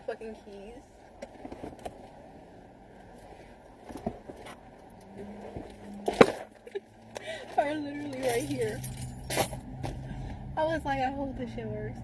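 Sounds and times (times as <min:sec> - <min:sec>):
low steady background noise: 0:00.0 - 0:12.0.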